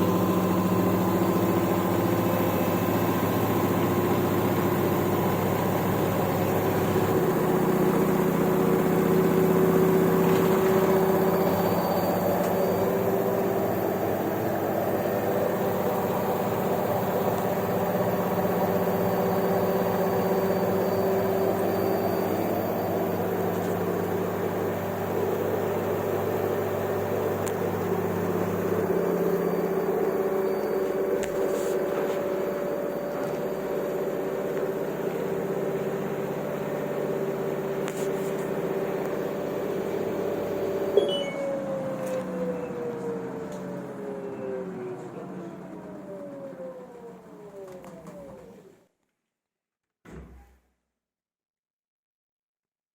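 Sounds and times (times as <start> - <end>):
washing machine motor hum: 0.0 - 48.8.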